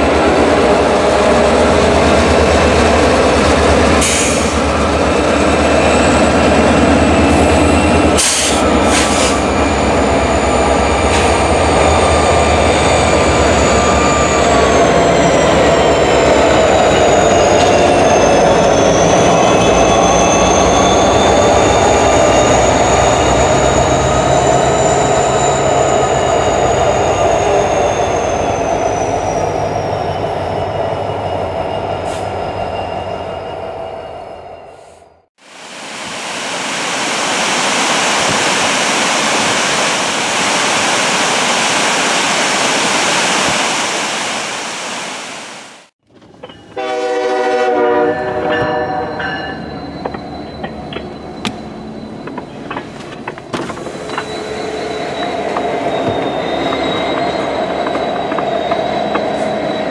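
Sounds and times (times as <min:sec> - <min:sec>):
wheel flange squeals: 0:48.2 - 0:59.9
locomotive engine rumble: 0:48.3 - 0:59.9.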